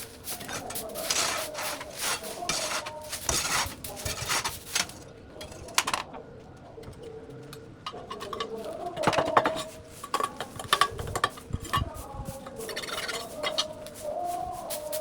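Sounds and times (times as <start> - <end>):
rasping scraping strokes: 0.0 - 5.0.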